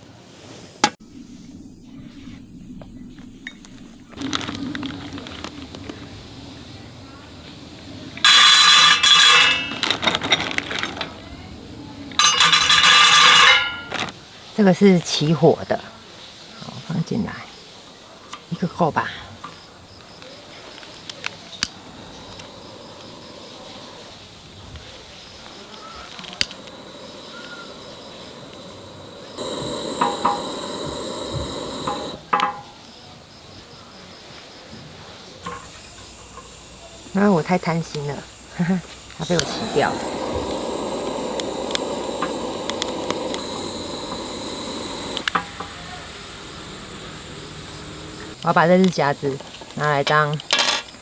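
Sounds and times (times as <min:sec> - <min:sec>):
fire crackles and snaps: 0:04.2 - 0:08.2, 0:20.8 - 0:32.2, 0:39.1 - 0:47.3
wood fire rushing hiss: 0:04.2 - 0:15.2, 0:19.4 - 0:32.6, 0:35.4 - 0:48.5
faint high chirping: 0:21.5 - 0:32.2.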